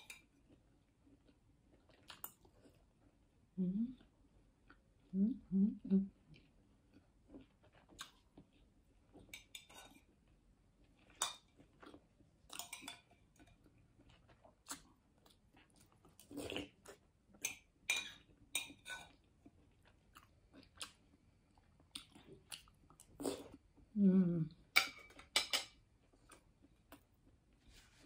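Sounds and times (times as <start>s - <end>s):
chewing and mouth smacks: 0.5s - 2.8s, 6.3s - 9.3s, 11.0s - 17.6s, 18.9s - 23.6s.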